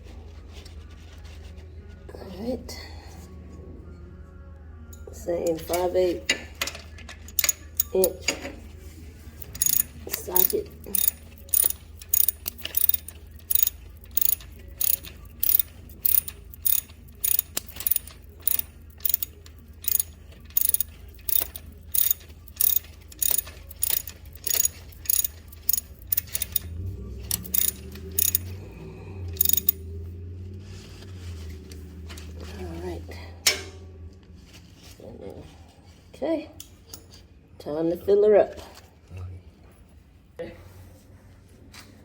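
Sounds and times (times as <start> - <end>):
socket ratchet clicking: 7.3 - 8.2, 9.4 - 26.7, 27.3 - 28.5, 29.4 - 29.8.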